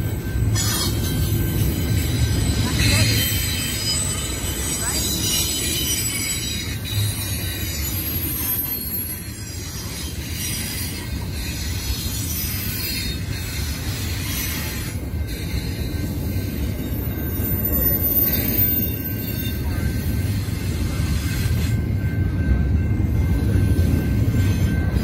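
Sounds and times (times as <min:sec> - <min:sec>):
train cars rumbling past: 0:00.0 - 0:25.0
high-pitched wheel squeal: 0:00.5 - 0:19.7.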